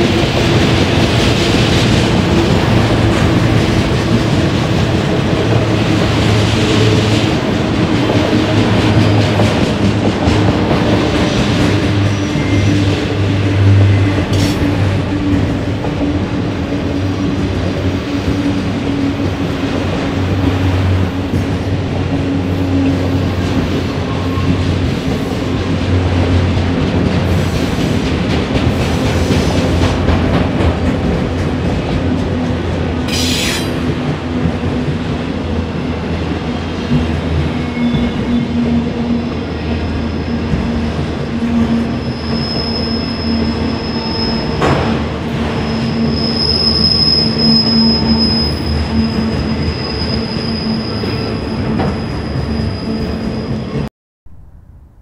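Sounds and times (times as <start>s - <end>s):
freight train wheels rumbling: 0.0s - 54.5s
high wheel squeal: 11.8s - 14.8s, 37.4s - 38.7s, 41.3s - 53.9s.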